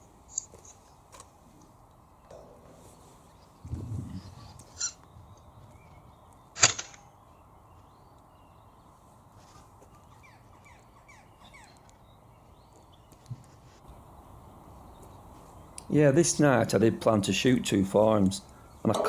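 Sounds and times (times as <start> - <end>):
air rifle shot crack: 6.6 - 7.0.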